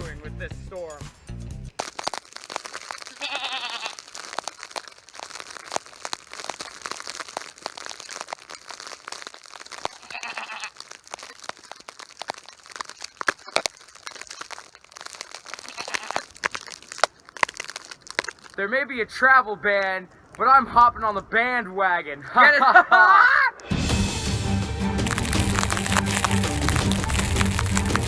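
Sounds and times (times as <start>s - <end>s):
crunching and crackling: 1.7s - 22.9s, 23.6s - 28.0s
goats bleating: 3.0s - 4.2s, 9.8s - 10.9s, 15.4s - 16.3s.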